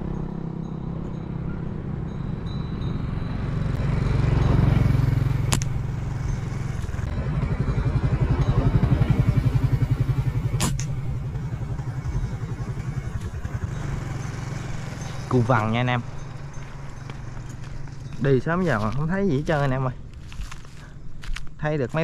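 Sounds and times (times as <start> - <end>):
motorbike engine running: 0.0 - 20.6.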